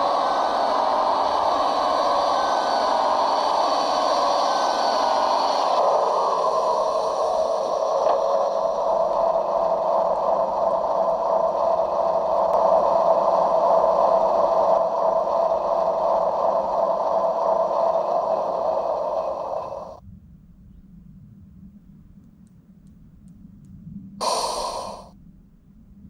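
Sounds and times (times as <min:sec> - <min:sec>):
electric motor and gears running: 0:24.2 - 0:25.1.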